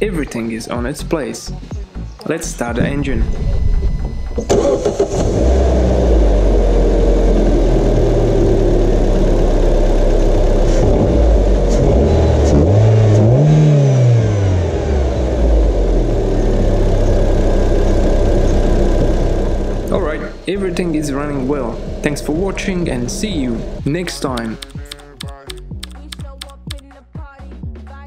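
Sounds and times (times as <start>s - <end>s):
car engine idling: 2.7s - 26.2s
car engine revving: 2.8s - 25.2s
starter motor cranking: 4.2s - 5.5s.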